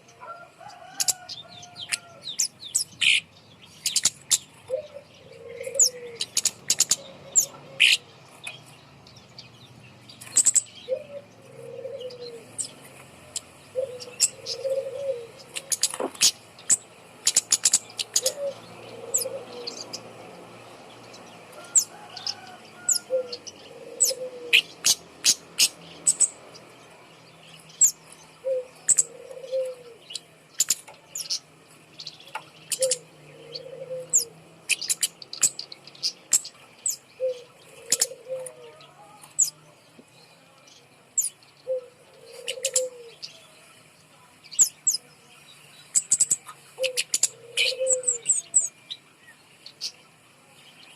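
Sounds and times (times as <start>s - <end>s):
dove cooing: 0.0s - 2.2s, 4.3s - 8.6s, 10.3s - 20.7s, 21.4s - 26.4s, 27.8s - 30.3s, 32.7s - 35.0s, 37.1s - 39.5s, 41.6s - 43.2s, 46.7s - 48.7s
bird giving high chipping calls: 0.9s - 8.7s, 10.2s - 20.1s, 21.6s - 26.4s, 32.3s - 38.6s.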